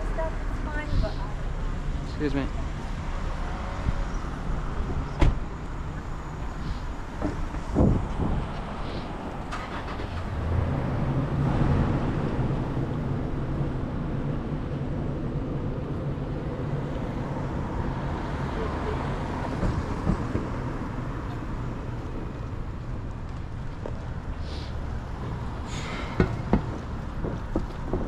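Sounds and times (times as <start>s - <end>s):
wind and bicycle tyre rumble: 3.6s - 18.5s, 19.2s - 28.0s
thump: 5.2s - 5.4s, 26.1s - 28.0s.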